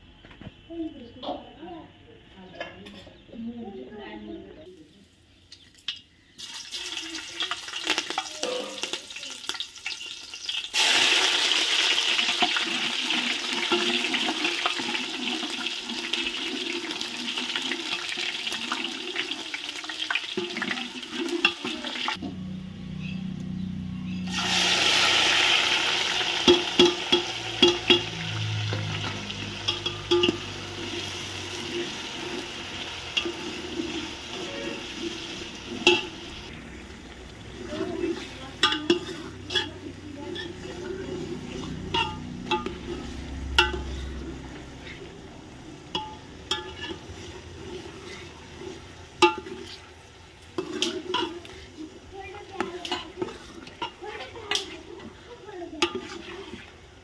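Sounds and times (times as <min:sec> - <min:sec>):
food sizzling in hot oil: 0:06.3 - 0:22.2, 0:24.2 - 0:57.0
spoon scraping a pot: 0:28.8 - 0:36.4, 0:37.7 - 0:56.8
spoon clinking against pot: 0:29.0 - 0:30.6, 0:35.7 - 0:36.2, 0:38.6 - 0:40.6, 0:41.5 - 0:44.2, 0:45.9 - 0:47.2.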